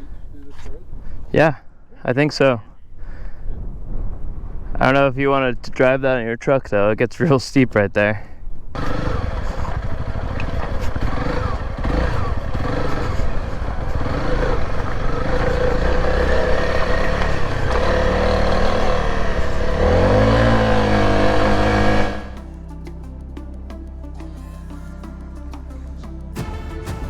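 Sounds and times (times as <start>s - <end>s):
motorcycle engine revving: 8.8s - 22.7s.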